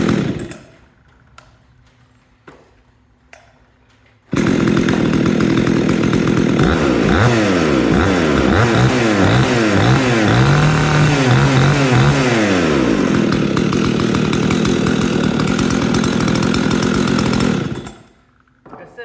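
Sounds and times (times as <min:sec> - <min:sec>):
chainsaw revving: 0:00.0 - 0:00.7, 0:04.3 - 0:18.3.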